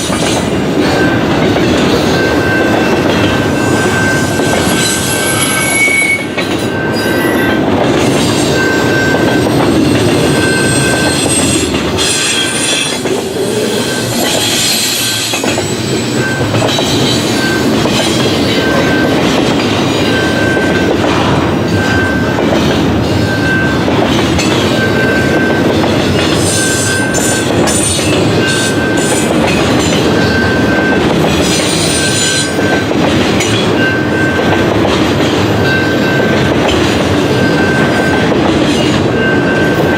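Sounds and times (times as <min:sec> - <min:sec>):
train wheels clattering: 0:00.0 - 0:39.9
wheel squeal: 0:03.7 - 0:07.6.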